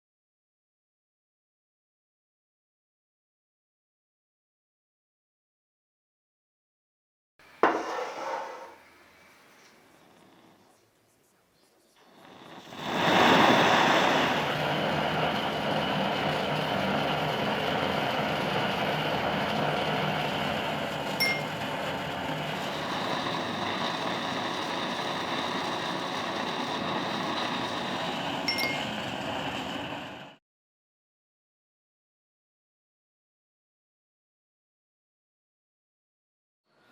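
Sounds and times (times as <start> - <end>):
power tool running with hiss: 12.0 - 30.4.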